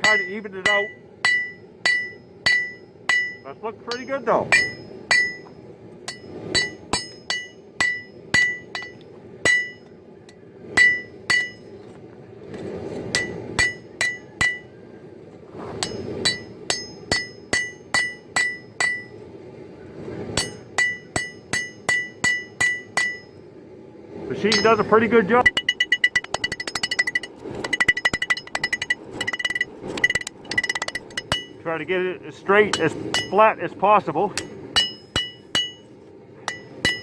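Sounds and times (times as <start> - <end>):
hammer striking metal on anvil: 0.0 - 9.9, 10.8 - 11.7, 13.1 - 14.8, 15.8 - 19.2, 20.4 - 23.4, 24.5 - 31.6, 32.7 - 33.5, 34.3 - 37.0.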